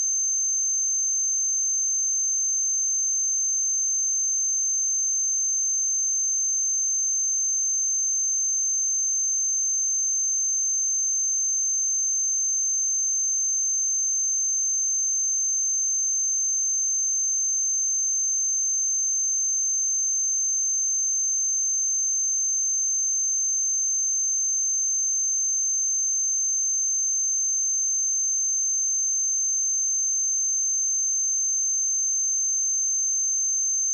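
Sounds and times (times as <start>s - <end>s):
high-pitched sine test tone: 23.8s - 33.9s.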